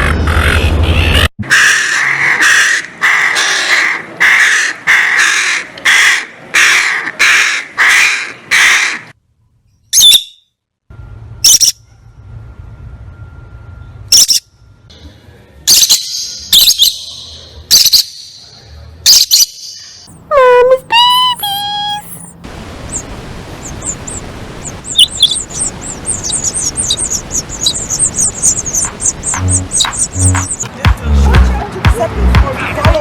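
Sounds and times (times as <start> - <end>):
bird squawking: 20.3 - 30.7
short high-pitched bird calls: 20.3 - 30.7.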